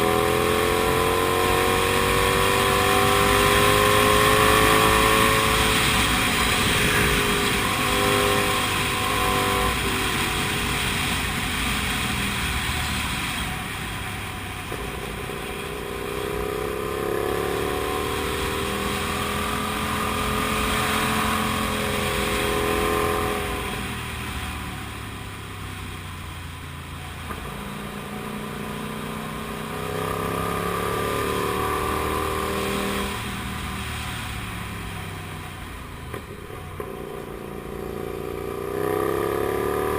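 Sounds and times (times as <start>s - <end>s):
motorcycle engine revving: 0.0s - 39.9s
wind noise rush: 5.3s - 14.1s.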